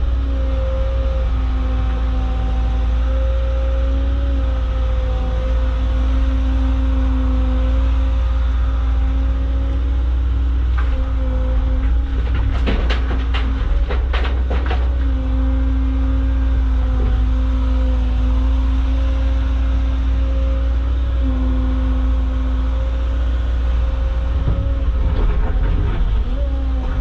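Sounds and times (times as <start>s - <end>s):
diesel engine running: 0.0s - 27.0s
hydraulic whine: 15.0s - 27.0s.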